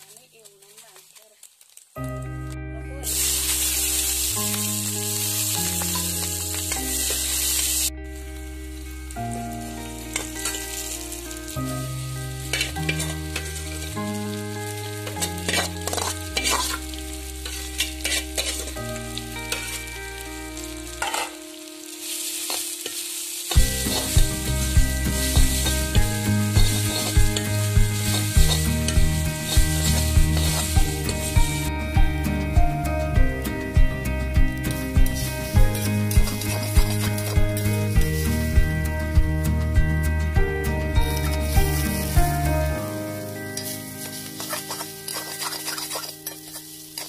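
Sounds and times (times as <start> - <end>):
food sizzling in hot oil: 0.0 - 40.2, 40.8 - 47.0
background music: 2.0 - 47.0
metal spatula scraping wok: 10.1 - 10.8, 12.4 - 13.9, 15.0 - 19.8, 21.0 - 21.4, 22.0 - 31.6, 34.7 - 38.5, 43.3 - 47.0.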